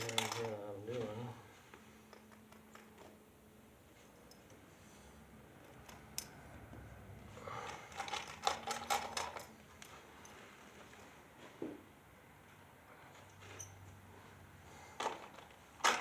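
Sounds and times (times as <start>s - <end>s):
small metal hardware clinking: 0.0s - 0.7s, 2.0s - 3.2s, 4.1s - 4.6s, 5.6s - 6.4s, 7.6s - 10.4s, 13.2s - 13.9s.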